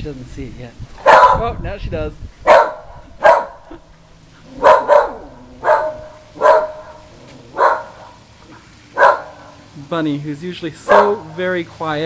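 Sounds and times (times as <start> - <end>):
dog barking: 1.0 - 1.4, 2.5 - 3.6, 4.6 - 8.2, 9.0 - 9.6, 10.9 - 11.3.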